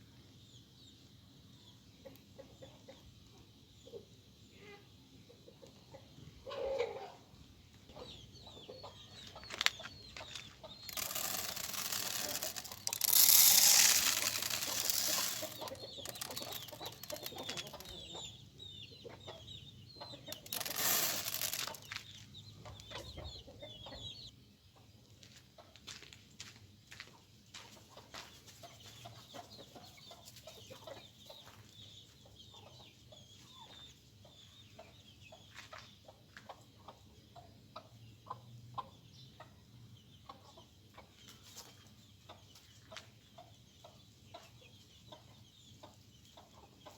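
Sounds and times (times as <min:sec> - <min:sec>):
birds calling: 0:07.9 - 0:11.3, 0:14.0 - 0:24.3
loud rustling noise: 0:10.9 - 0:17.7, 0:20.4 - 0:22.0.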